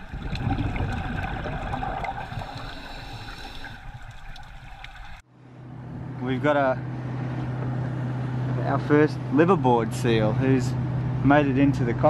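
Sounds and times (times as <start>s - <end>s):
water sloshing and gurgling: 0.0s - 5.3s
steady low rumble: 0.0s - 12.0s.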